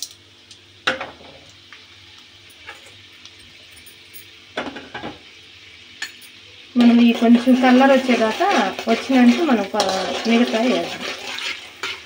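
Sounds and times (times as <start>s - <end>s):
lentils sizzling in hot oil: 4.8s - 12.0s.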